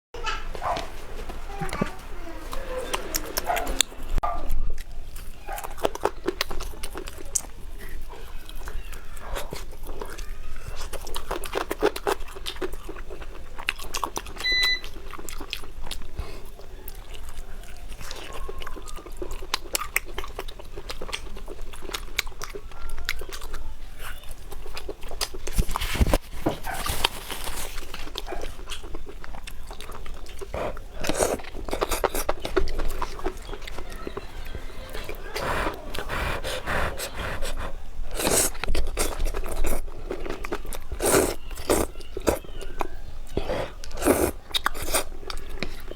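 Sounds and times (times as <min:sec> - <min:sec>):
person chewing crunchy food: 0:00.6 - 0:45.9
wet mouth clicks: 0:29.4 - 0:42.6, 0:43.3 - 0:45.8.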